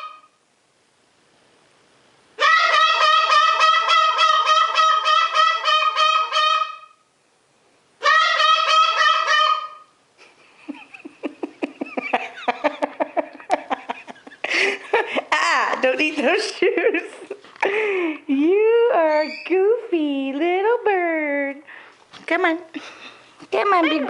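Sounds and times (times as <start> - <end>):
parrot honking calls: 0.0 - 0.4, 2.4 - 7.1, 8.0 - 10.0
parrot clicking chatter: 2.4 - 6.8, 8.0 - 9.8.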